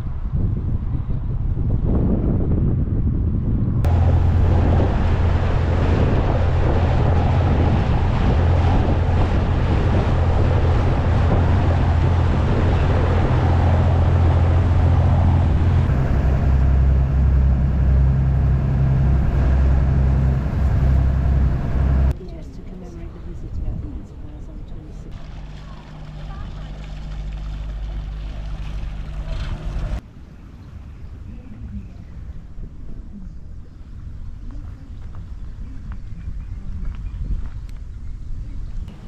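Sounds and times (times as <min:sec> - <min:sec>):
wind noise on microphone: 0:00.0 - 0:39.0
boat engine hum: 0:03.8 - 0:36.8
water rushing: 0:03.9 - 0:22.1, 0:25.1 - 0:30.0.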